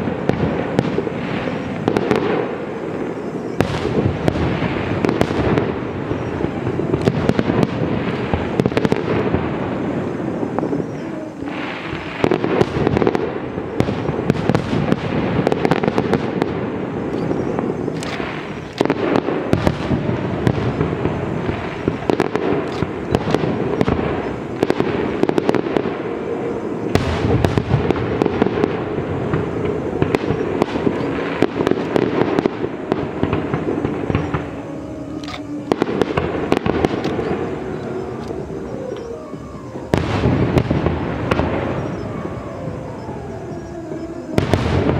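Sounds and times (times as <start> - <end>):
fireworks bangs and crackling: 0.0 - 44.9.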